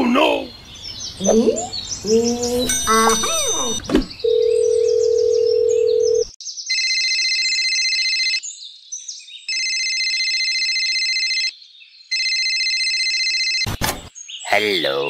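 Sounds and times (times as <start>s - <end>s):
telephone ringing: 2.7s - 8.4s, 9.5s - 11.5s, 12.1s - 13.7s
telephone dial tone: 3.0s - 8.4s.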